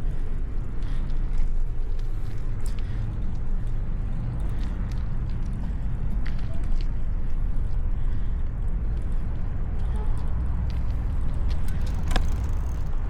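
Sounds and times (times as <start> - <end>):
street noise: 0.0 - 13.0
wind rumble on microphone: 0.0 - 13.0.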